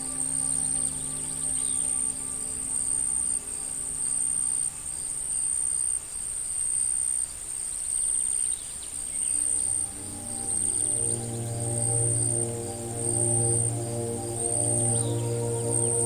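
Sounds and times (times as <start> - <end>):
soft music: 0.0 - 5.5, 9.0 - 16.0
insects trilling: 0.0 - 16.0.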